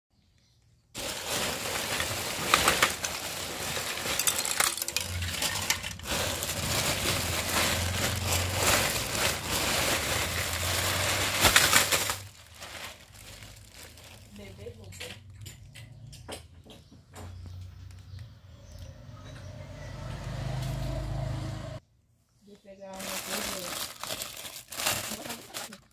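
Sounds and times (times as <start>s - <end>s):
plastic bags crinkling: 0.9s - 15.0s, 22.9s - 25.9s.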